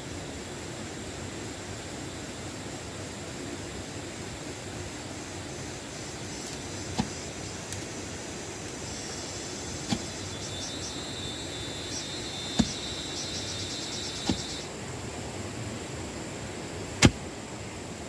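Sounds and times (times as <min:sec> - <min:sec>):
high insect drone: 0:04.2 - 0:15.0
rapid chirping insect call: 0:04.3 - 0:14.7
sharp knocks: 0:09.8 - 0:10.1, 0:12.5 - 0:12.8, 0:14.1 - 0:14.6.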